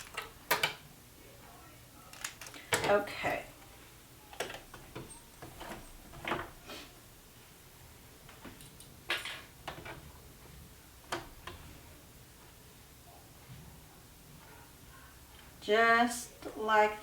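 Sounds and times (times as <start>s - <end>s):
light clicks and knocks: 11.0s - 11.7s.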